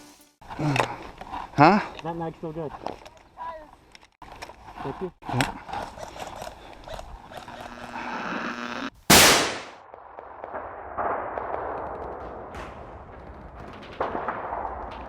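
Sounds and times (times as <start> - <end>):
rising whining tone: 7.3 - 8.9
loud bang: 9.1 - 9.8.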